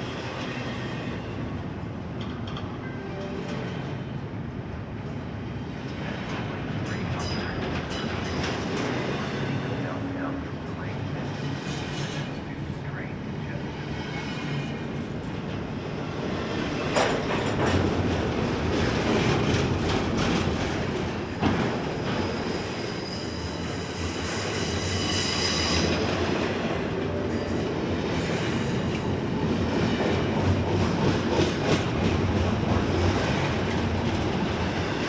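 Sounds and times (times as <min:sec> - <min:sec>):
freight train cars rumbling: 0:00.0 - 0:35.0
wheels clicking over rail joints: 0:16.8 - 0:22.5
high wheel squeal: 0:22.3 - 0:26.1.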